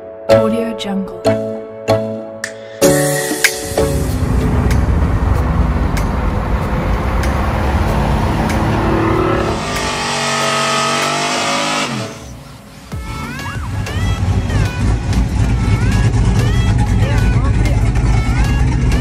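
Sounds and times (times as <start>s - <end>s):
pickup truck engine accelerating: 3.6s - 19.0s.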